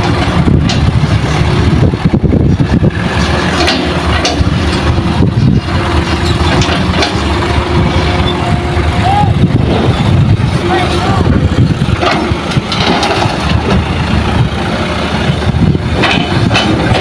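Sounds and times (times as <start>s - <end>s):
heavy diesel machinery engine: 0.0s - 17.0s
sharp knocks and clanks: 3.1s - 4.9s, 6.1s - 7.3s, 11.7s - 13.9s, 15.9s - 17.0s.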